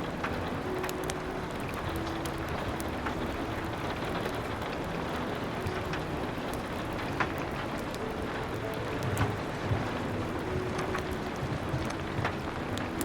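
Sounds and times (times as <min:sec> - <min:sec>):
rain hiss: 0:00.0 - 0:13.0
wood fire crackling: 0:00.0 - 0:13.0.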